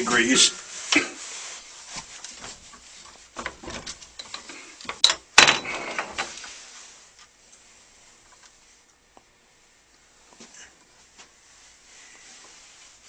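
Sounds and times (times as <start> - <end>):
metal clicks and knocks: 3.4 - 6.3.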